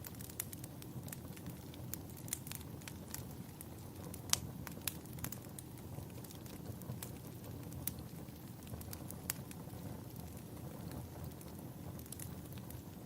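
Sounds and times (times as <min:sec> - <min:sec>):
sharp pops of fire: 0:00.0 - 0:13.0
wood fire crackling: 0:00.0 - 0:13.0.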